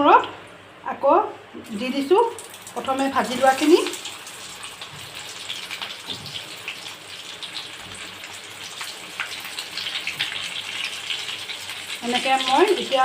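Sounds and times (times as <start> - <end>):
food deep-frying in hot oil: 1.6 - 13.0
oil crackles and pops: 1.7 - 13.0.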